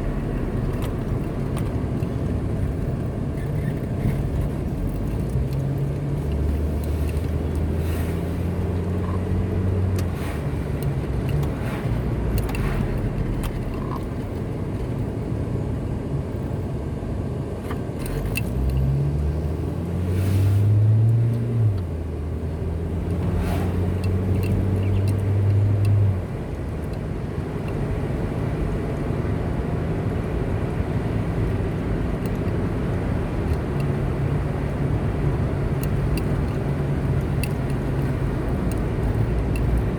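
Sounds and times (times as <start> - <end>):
car engine: 0.0 - 39.9
tyre and road noise: 0.0 - 39.9.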